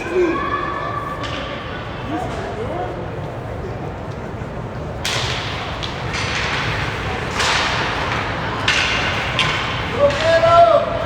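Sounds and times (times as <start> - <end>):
sharp clicks of hockey sticks: 5.0 - 11.0.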